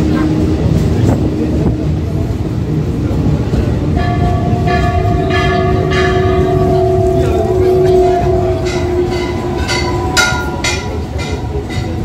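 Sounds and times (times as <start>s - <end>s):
train wheels rumbling on track: 0.0s - 12.0s
train horn long note: 4.0s - 11.7s.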